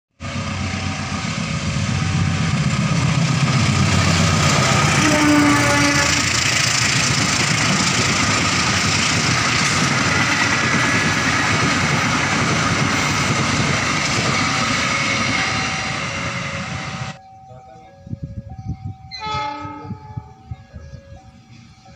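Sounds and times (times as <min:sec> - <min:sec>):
train passing at speed: 0:00.2 - 0:17.2.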